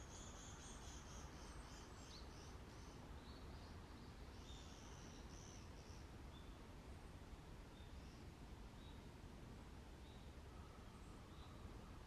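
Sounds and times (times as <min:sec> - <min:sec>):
small birds calling: 0:00.0 - 0:06.6.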